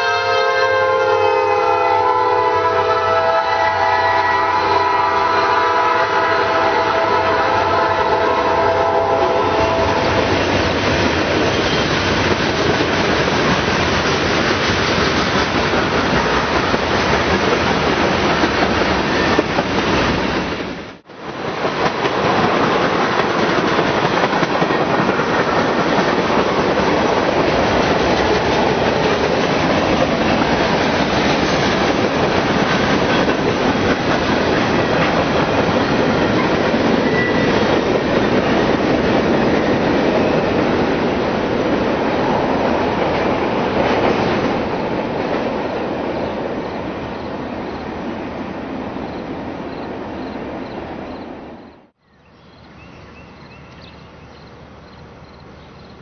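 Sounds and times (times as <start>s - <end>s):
freight train rumbling past: 0.0s - 52.0s
wheels clacking over rail joints: 21.2s - 46.2s.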